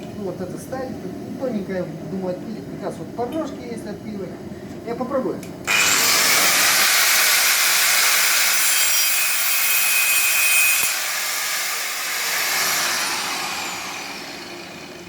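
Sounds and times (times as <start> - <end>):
grinder spinning down whine: 5.7 - 8.3, 10.7 - 15.0
angle grinder cutting sheet steel: 5.7 - 15.0.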